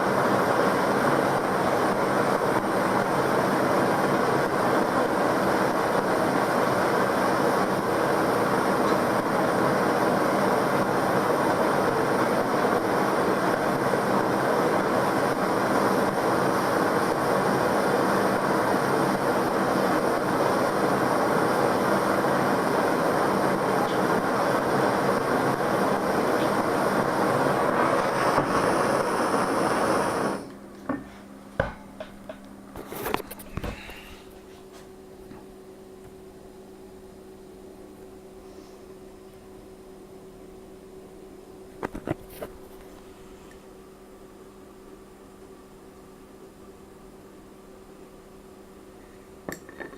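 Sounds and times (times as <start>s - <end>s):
gas torch flame hissing: 0.0s - 30.6s.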